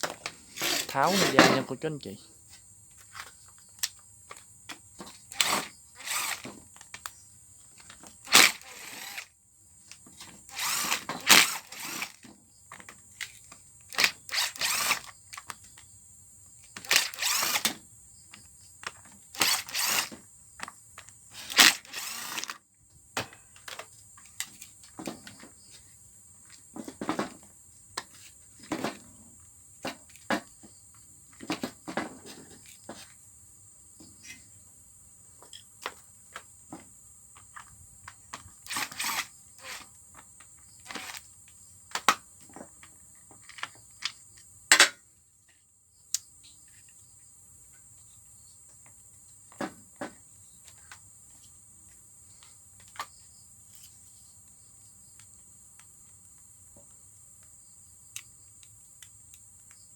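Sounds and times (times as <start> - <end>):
tools and parts clattering: 21.4 - 22.6, 40.9 - 41.2.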